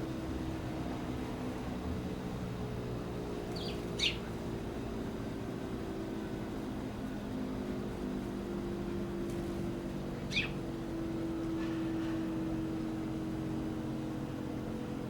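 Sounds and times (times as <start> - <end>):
low mechanical hum: 0.0 - 15.0
small bird chirp: 3.5 - 4.3, 10.2 - 10.6.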